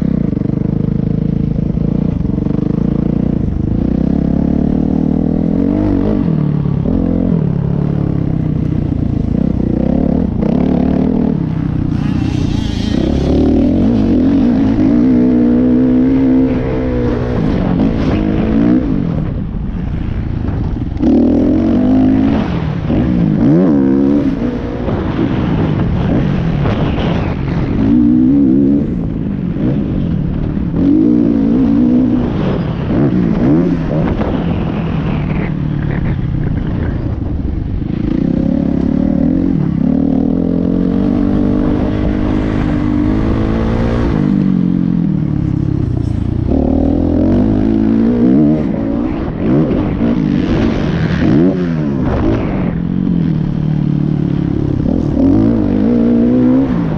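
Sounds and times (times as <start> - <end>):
motocross bike engine revving: 8.9 - 19.4.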